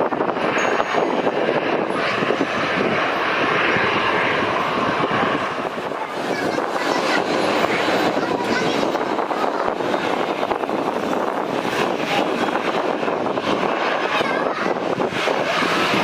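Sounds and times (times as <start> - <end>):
jet engines rushing: 0.0 - 16.0.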